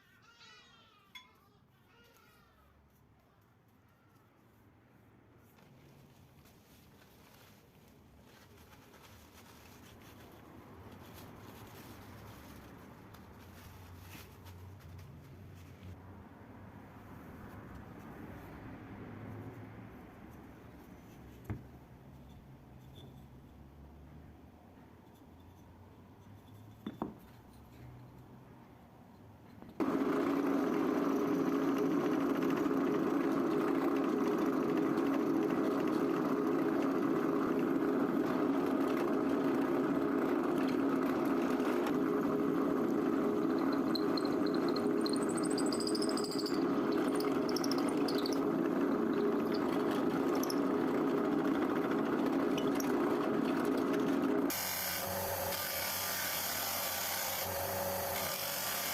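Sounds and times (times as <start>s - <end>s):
faint high squeaks: 22.2s - 23.6s, 43.6s - 48.5s
electric power tool running: 29.8s - 58.9s.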